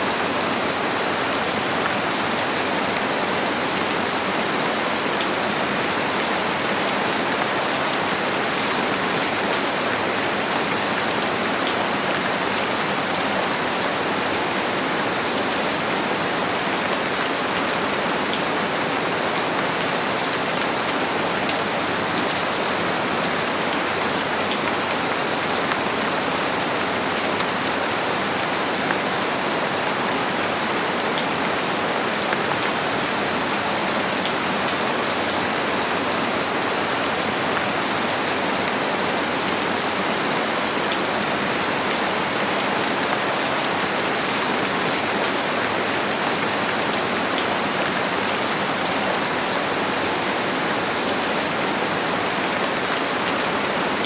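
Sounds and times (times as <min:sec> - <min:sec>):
heavy rain on a surface: 0:00.0 - 0:54.0.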